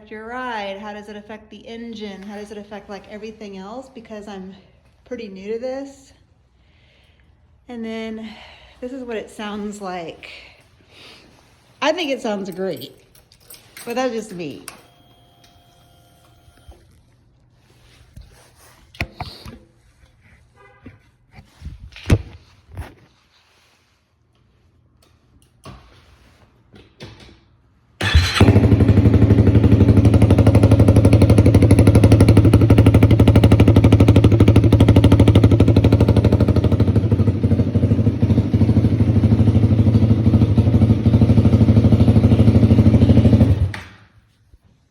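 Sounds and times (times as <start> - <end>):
motorcycle engine idling: 28.0 - 43.7
motorcycle engine starting: 28.0 - 44.0.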